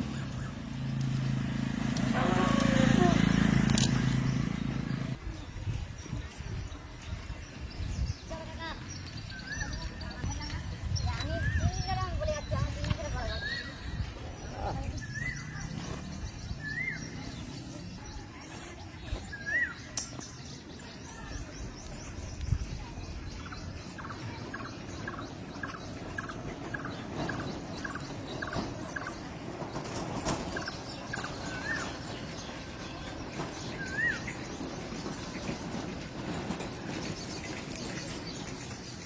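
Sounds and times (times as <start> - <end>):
birds chirping: 0.0 - 39.0.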